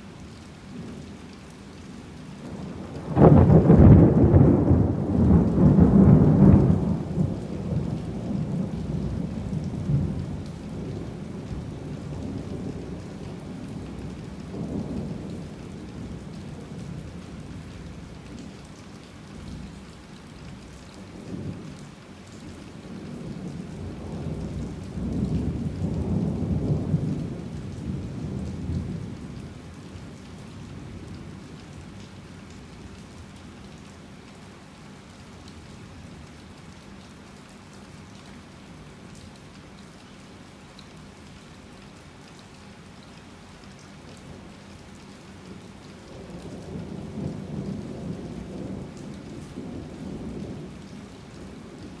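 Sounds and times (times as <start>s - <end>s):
heavy rain: 0.0s - 52.0s
rolling thunder: 2.8s - 17.0s, 23.9s - 29.4s, 46.3s - 50.8s.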